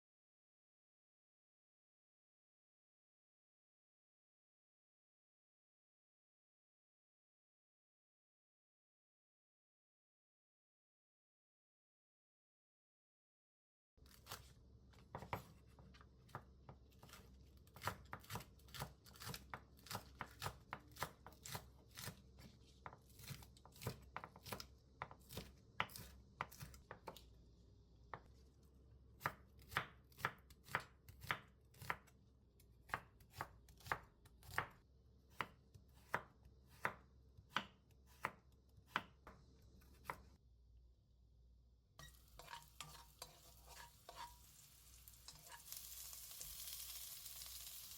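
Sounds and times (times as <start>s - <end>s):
knife chopping on cutting board: 15.0s - 27.2s, 29.2s - 32.1s, 32.8s - 40.3s, 42.4s - 44.4s.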